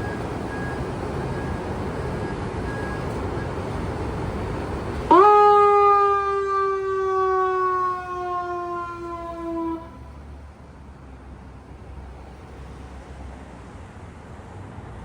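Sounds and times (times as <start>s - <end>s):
fire truck horn blast: 5.1s - 10.1s.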